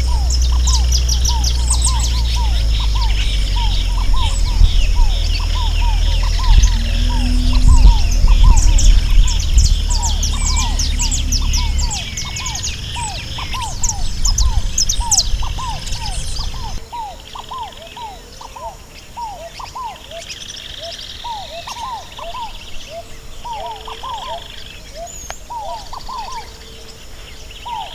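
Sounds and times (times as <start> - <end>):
low rumble: 0.0 - 16.8
short falling bird calls: 0.0 - 24.4
birds chirping and trilling: 0.0 - 27.9.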